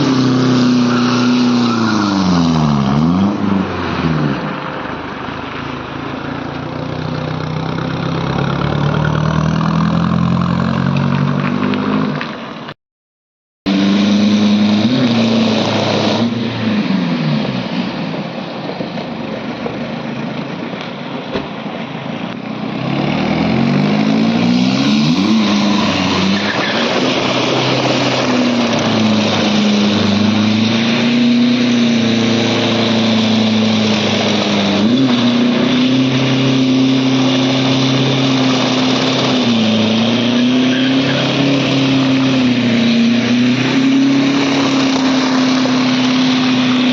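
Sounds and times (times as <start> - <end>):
spinning tyres hissing: 0.0 - 3.2, 13.7 - 46.9
diesel engine revving: 0.0 - 12.3, 13.7 - 46.9.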